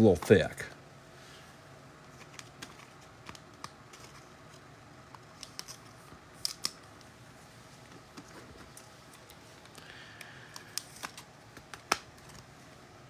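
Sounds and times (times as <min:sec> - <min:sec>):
trading cards and wrappers handled: 0:02.0 - 0:07.1, 0:07.8 - 0:12.6.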